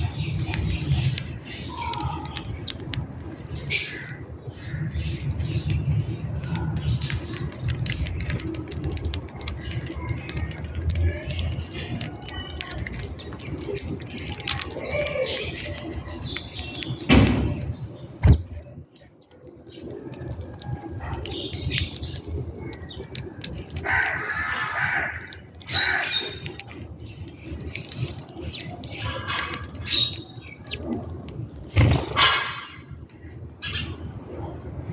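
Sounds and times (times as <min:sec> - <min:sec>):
birds chirping and calling: 0:00.0 - 0:34.9
small clicks: 0:00.2 - 0:24.2.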